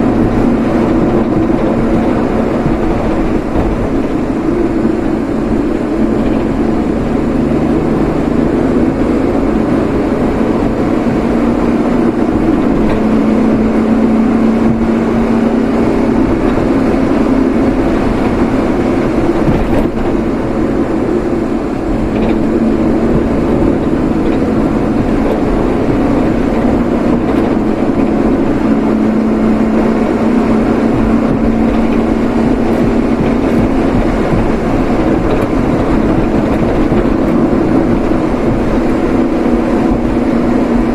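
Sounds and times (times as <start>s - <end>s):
vehicle engine and road noise: 0.0s - 40.9s.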